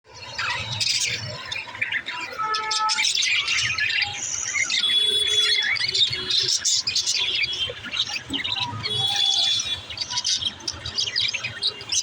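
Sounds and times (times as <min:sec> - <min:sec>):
budgerigars chirping and warbling: 0:00.1 - 0:12.0.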